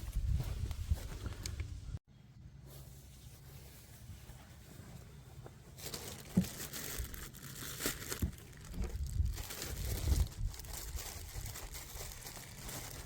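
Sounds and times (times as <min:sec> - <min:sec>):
plastic packaging crinkling: 0:05.7 - 0:13.0.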